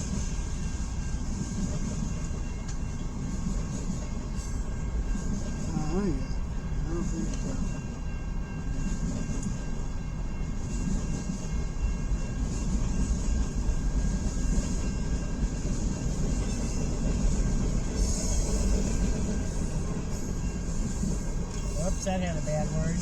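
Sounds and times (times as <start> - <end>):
faint high steady tones: 0.0 - 23.0
freight train wheels on rails: 0.0 - 23.0.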